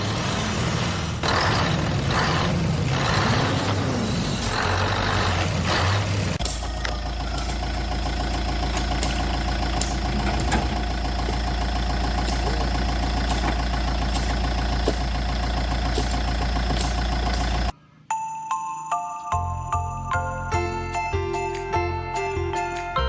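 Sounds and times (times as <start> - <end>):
vehicle engine idling: 0.0 - 17.8.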